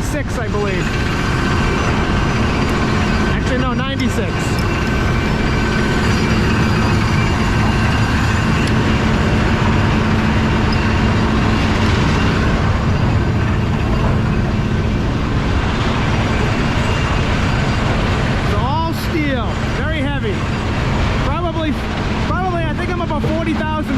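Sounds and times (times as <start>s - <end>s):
diesel truck engine drone: 0.0s - 23.9s.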